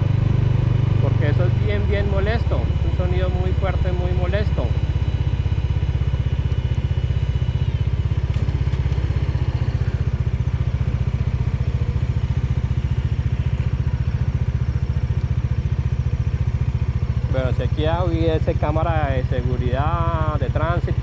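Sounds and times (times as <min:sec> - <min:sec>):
faint high whine: 0:00.0 - 0:08.3
motorcycle engine idling: 0:00.0 - 0:21.0.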